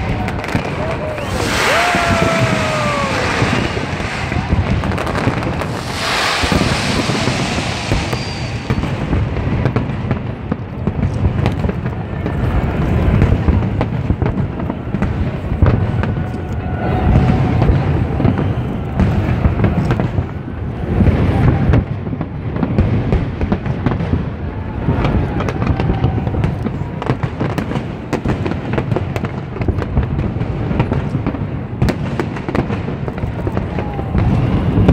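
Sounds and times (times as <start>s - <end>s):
fireworks bangs: 0.0s - 34.9s
fireworks crackling: 0.0s - 34.9s.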